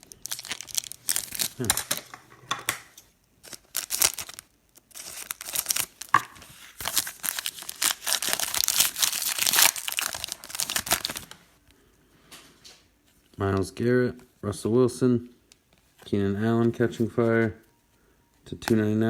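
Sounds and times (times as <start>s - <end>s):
card pack wrappers crinkling and tearing: 0.0s - 2.1s, 3.4s - 11.5s.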